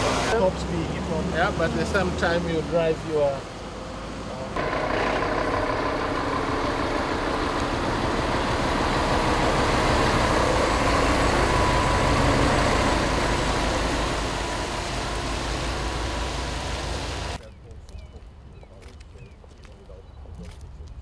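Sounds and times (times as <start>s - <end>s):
heavy truck engine running: 4.4s - 17.4s.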